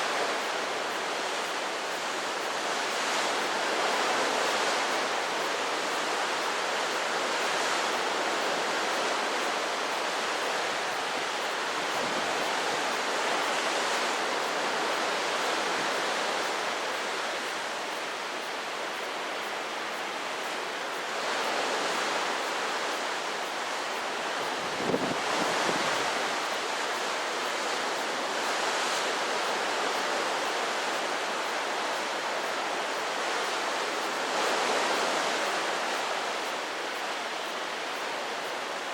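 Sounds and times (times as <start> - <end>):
choppy sea: 0.0 - 38.9
strong wind: 10.6 - 17.8, 24.3 - 26.9.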